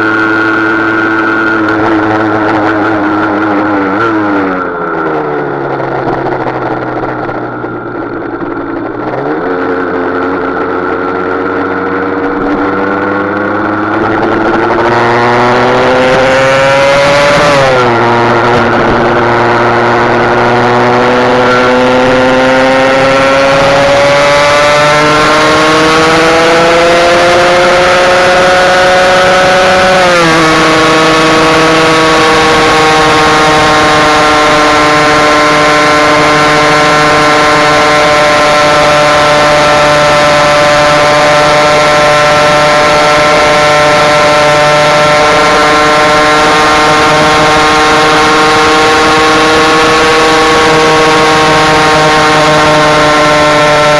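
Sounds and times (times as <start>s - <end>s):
two-stroke motorcycle engine revving: 0.0s - 53.9s
wind rush: 11.5s - 26.6s.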